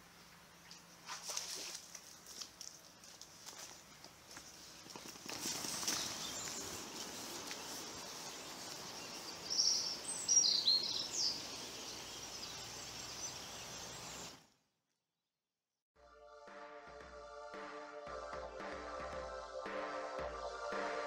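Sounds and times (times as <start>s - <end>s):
steady hiss: 4.4s - 14.4s
small bird high calls: 5.4s - 14.4s.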